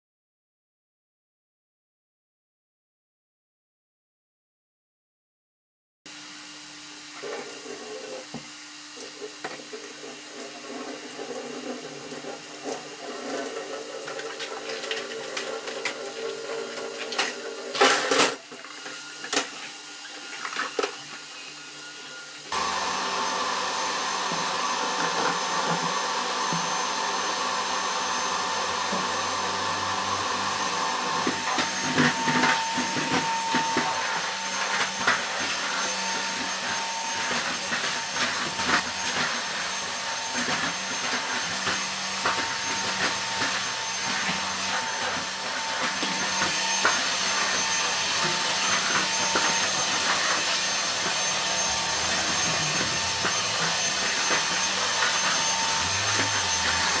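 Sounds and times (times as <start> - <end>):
vacuum cleaner running: 6.1 - 57.0.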